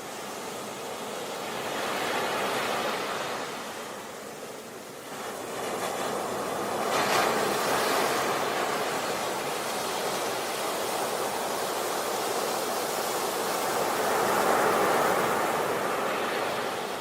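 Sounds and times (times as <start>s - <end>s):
sea waves washing on beach: 0.0s - 17.0s.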